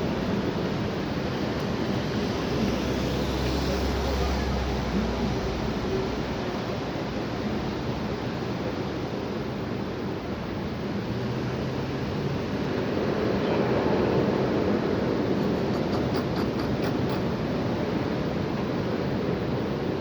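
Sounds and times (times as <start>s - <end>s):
high wind blowing: 4.8s - 20.0s.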